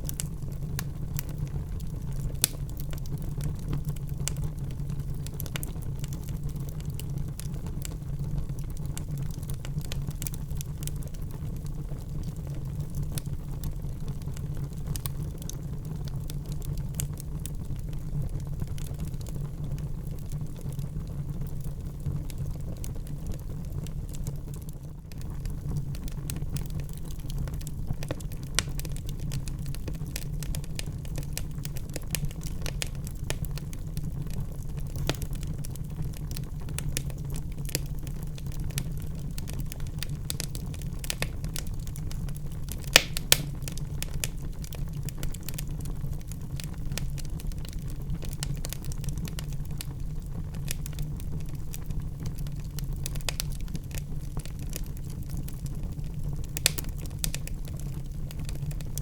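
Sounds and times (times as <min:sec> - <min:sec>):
low fire rumble: 0:00.0 - 0:59.0
wood fire crackling: 0:00.0 - 0:59.0
sharp fire pops: 0:42.7 - 0:44.7, 0:56.4 - 0:57.6.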